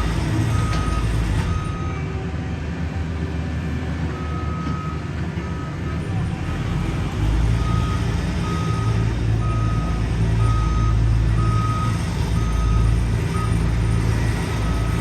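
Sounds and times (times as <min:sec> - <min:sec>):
diesel engine running: 0:00.0 - 0:15.0
reverse warning beeps: 0:00.5 - 0:02.0, 0:07.6 - 0:15.0.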